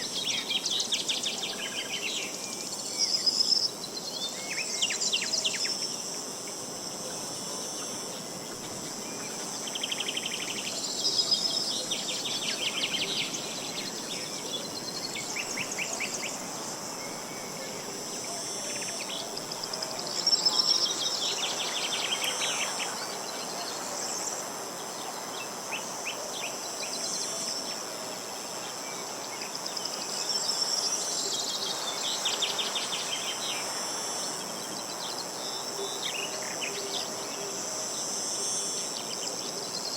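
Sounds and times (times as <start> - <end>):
crickets chirping: 0.0 - 39.9
songbirds trilling: 7.8 - 38.0.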